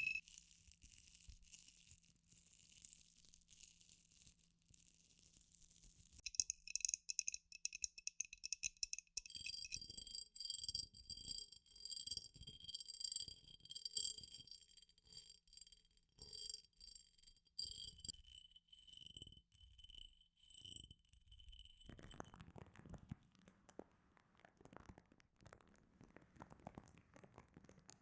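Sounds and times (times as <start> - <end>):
metallic jingling: 0.0 - 0.2, 6.2 - 9.8.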